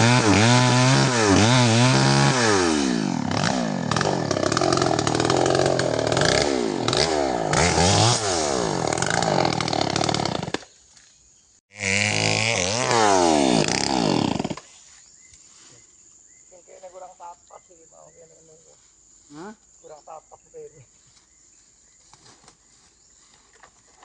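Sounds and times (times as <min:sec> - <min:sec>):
chainsaw cutting wood: 0:00.0 - 0:10.8, 0:11.7 - 0:14.7.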